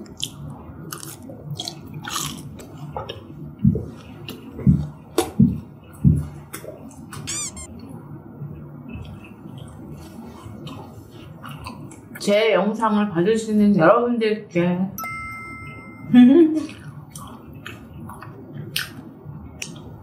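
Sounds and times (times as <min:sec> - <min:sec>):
chewing crispy food: 0:00.0 - 0:07.3, 0:08.8 - 0:12.3, 0:16.6 - 0:20.0
brief wavering squeak: 0:07.3 - 0:07.7.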